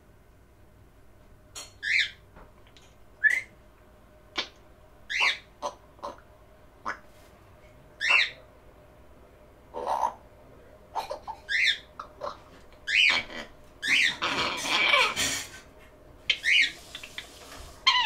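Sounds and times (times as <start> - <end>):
parrot calls: 1.8 - 2.2, 4.4 - 6.2, 8.0 - 8.4, 9.7 - 10.2, 10.9 - 15.6, 16.3 - 18.0.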